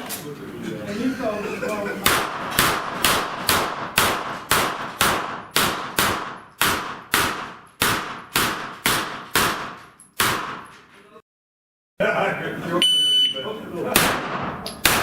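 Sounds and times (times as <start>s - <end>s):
gunshots hitting steel plates: 2.0s - 10.9s, 14.0s - 15.0s.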